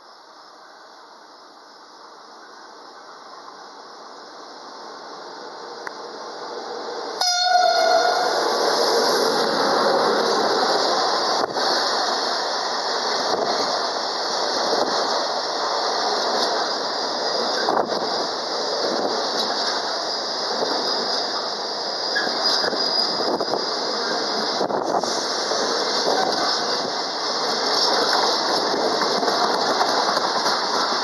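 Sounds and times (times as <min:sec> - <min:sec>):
freight train rumbling past: 0:00.9 - 0:31.0
locomotive horn blast: 0:07.2 - 0:08.5.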